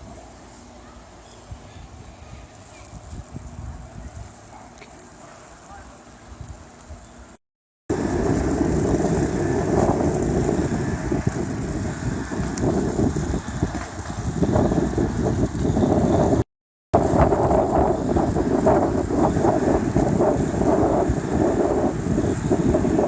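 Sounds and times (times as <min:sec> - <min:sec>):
strong wind buffeting microphone: 0:01.4 - 0:04.5, 0:07.9 - 0:16.4, 0:17.0 - 0:23.0.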